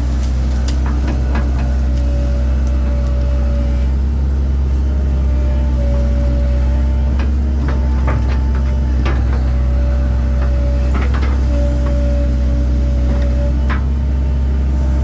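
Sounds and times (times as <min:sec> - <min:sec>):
excavator diesel engine running: 0:00.0 - 0:15.0
sharp knocks and cracks: 0:00.2 - 0:02.8, 0:07.2 - 0:09.5.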